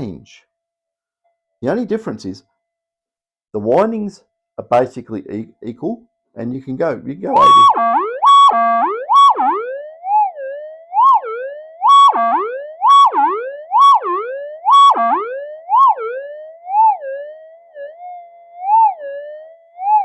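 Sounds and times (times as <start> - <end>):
metal detector swooping tone: 7.3 - 20.0.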